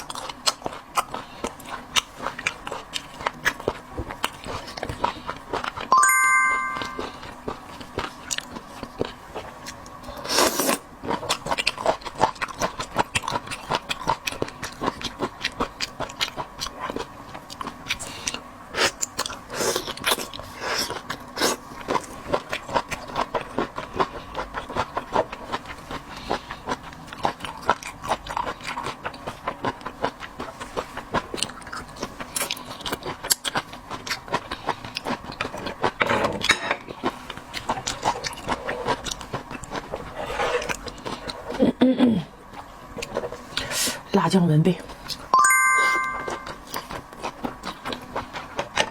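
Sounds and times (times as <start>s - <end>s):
wet chewing and mouth smacks: 7.8s - 41.6s.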